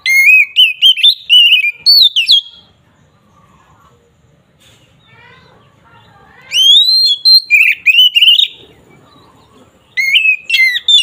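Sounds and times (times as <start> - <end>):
bird singing whistled phrases: 0.0 - 2.7, 6.5 - 8.6, 9.9 - 11.0.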